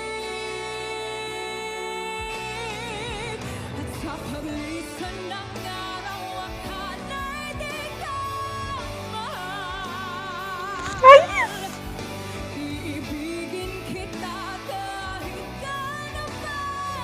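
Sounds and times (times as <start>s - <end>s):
woman singing a ballad: 0.0s - 11.8s, 12.4s - 17.0s
backing music: 10.8s - 11.8s.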